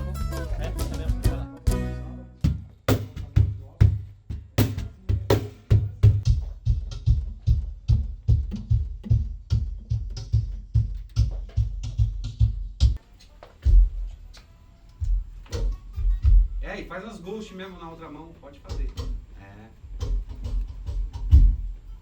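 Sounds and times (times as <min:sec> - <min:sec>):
cajon played with hands: 0:00.0 - 0:13.0, 0:19.9 - 0:22.0.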